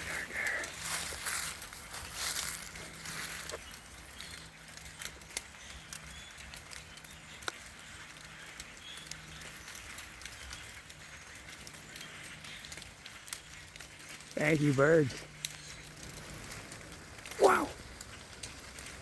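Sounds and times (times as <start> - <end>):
birds chirping: 0.0 - 19.0
nuts landing in leaf litter: 0.8 - 3.7.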